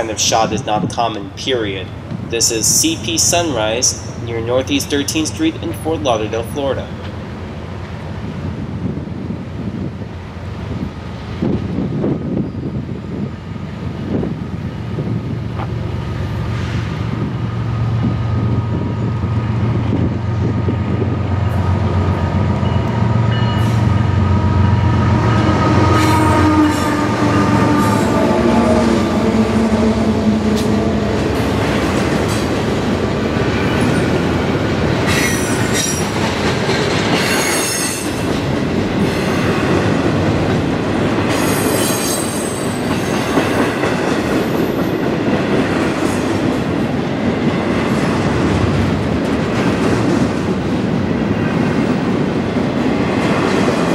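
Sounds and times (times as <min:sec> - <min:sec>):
diesel locomotive engine hum: 0:00.0 - 0:53.9
steel wheels squealing: 0:35.1 - 0:36.2, 0:41.4 - 0:43.3.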